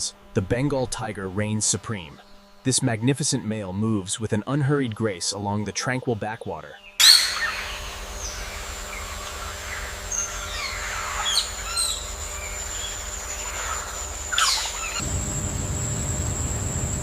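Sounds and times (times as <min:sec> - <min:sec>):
birds chirping: 0:06.4 - 0:17.0
steady high-pitched tone: 0:07.0 - 0:17.0
low rumbling noise: 0:07.6 - 0:17.0.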